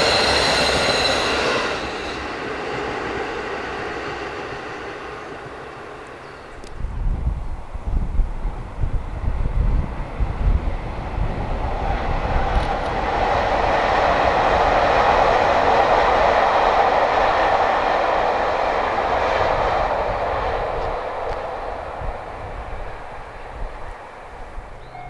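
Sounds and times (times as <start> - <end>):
passenger train running past: 0.0 - 25.0.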